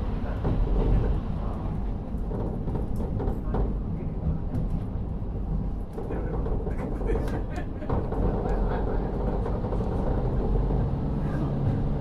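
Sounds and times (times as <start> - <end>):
train wheels on rails: 0.1 - 12.0
diesel engine rumble: 5.1 - 12.0.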